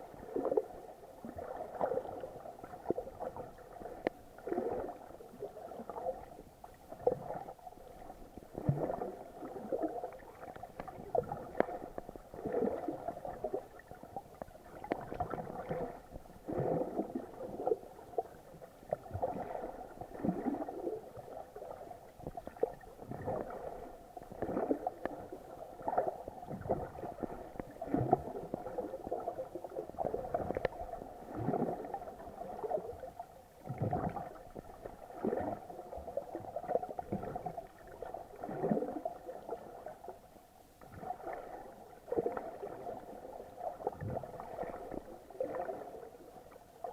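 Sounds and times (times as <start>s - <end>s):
muffled water sloshing and gurgling: 0.0s - 46.9s.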